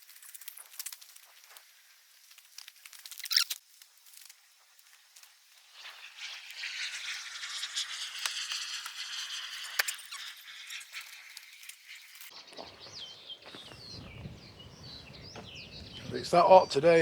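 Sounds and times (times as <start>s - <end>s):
birds chirping: 12.0s - 17.0s.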